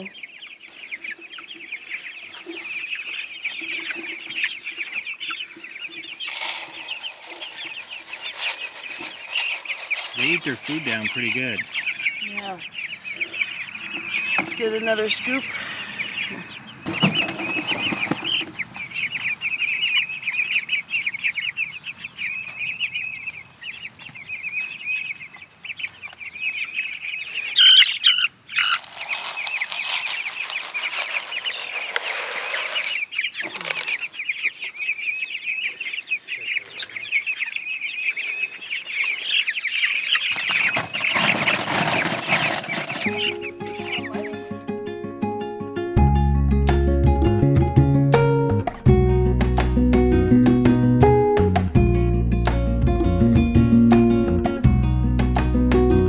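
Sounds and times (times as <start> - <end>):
chicks peeping and cheeping: 0.0 - 44.8
rushing rustling noise: 6.3 - 11.6, 28.6 - 33.1, 39.9 - 44.1.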